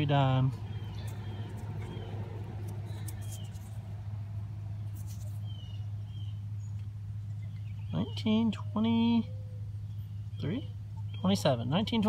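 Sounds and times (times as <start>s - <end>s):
truck engine idling: 0.0s - 8.4s
fingers rubbing coin: 1.0s - 3.8s.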